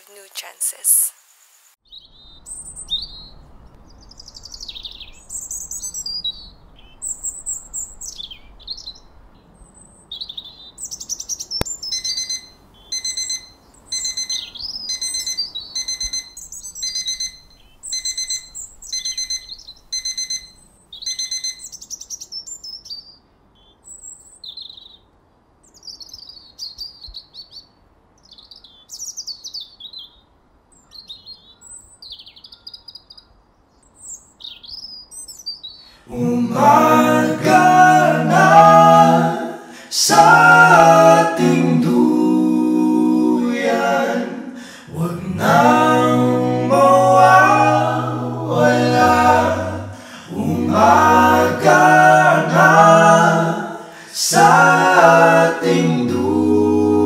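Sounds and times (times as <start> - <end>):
birds chirping: 1.8 - 25.0, 43.5 - 56.0
electronic alarm beeping: 11.8 - 21.8.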